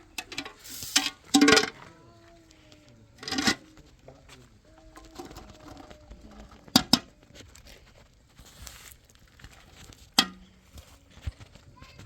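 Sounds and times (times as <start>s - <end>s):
hard objects knocking: 0.2s - 1.8s, 6.7s - 7.1s.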